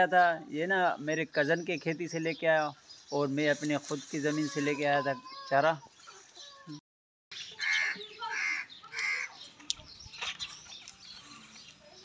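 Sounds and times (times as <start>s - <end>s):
bird calling harshly: 7.3s - 9.4s.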